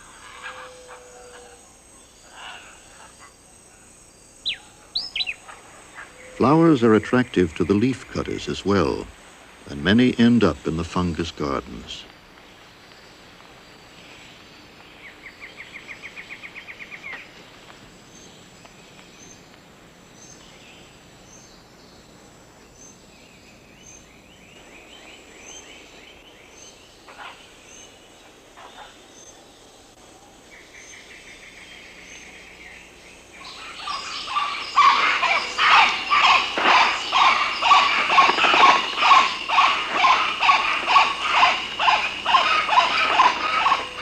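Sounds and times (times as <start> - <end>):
loud animal calls: 0.0 - 3.9, 33.4 - 44.0
bird calling in rapid runs: 33.3 - 44.0.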